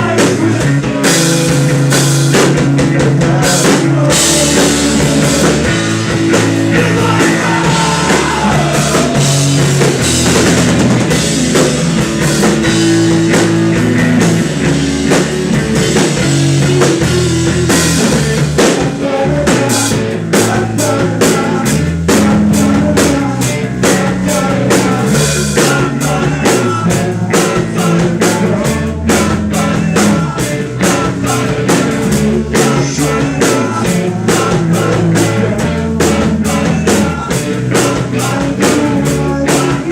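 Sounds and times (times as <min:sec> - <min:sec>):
drum kit hits: 0:00.0 - 0:20.6
live rock band playing: 0:00.0 - 0:39.9.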